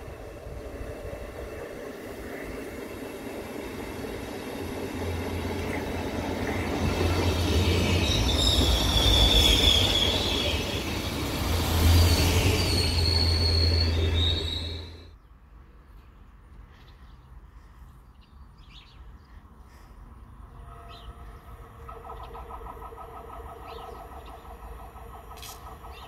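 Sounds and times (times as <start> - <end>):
train running past: 0.0 - 15.2, 20.4 - 26.0
high squeal: 7.2 - 15.1.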